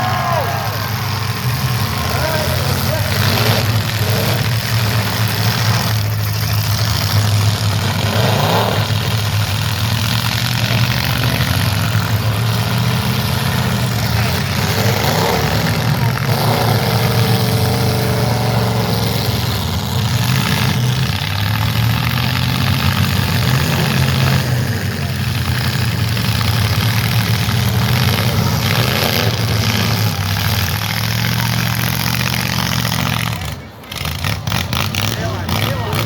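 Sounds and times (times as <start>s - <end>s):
car engines running loud: 0.0s - 36.0s.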